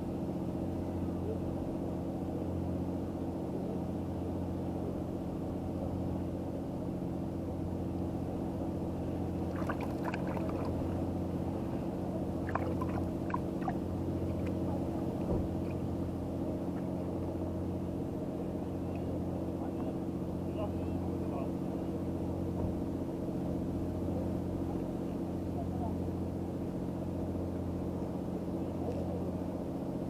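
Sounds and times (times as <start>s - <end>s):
boat engine idling: 8.3s - 26.2s.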